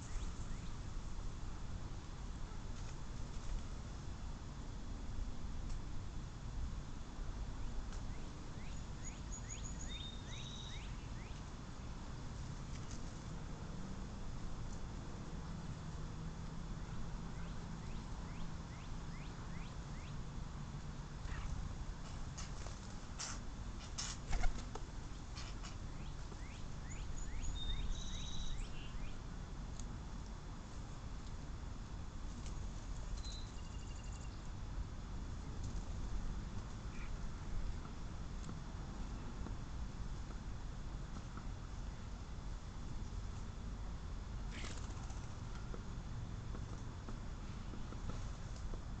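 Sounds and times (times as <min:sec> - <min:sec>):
starlings whistling: 0:08.6 - 0:11.4, 0:26.0 - 0:29.2
starling chirping: 0:26.4 - 0:29.1.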